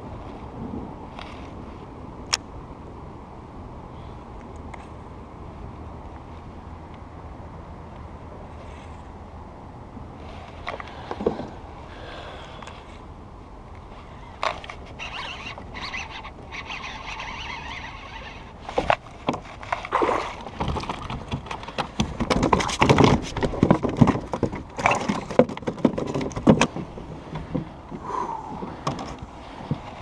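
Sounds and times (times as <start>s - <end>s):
water splashing against kayak: 14.8s - 30.0s.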